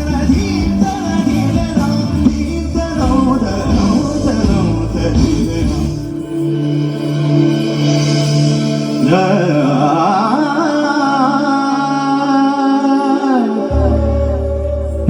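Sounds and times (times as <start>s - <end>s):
dance soundtrack music: 0.0s - 15.0s
wavering vocal melody: 0.0s - 15.0s
deep held tone: 13.4s - 15.0s.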